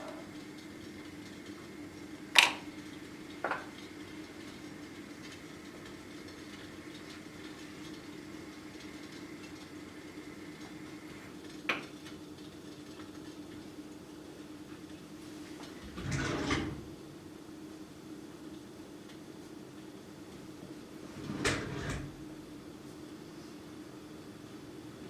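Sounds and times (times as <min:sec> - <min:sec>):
kitchenware clinking: 0:02.4 - 0:02.7.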